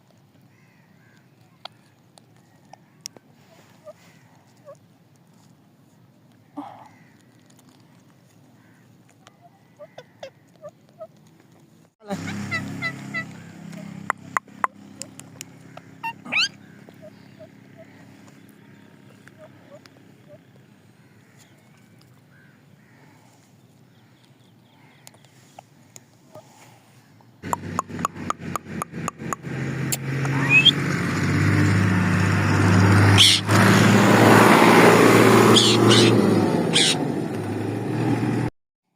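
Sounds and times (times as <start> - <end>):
parrot chirping: 16.0 - 17.9, 30.3 - 30.8, 33.1 - 33.5, 35.4 - 37.0
short rising chirp: 30.3 - 30.8.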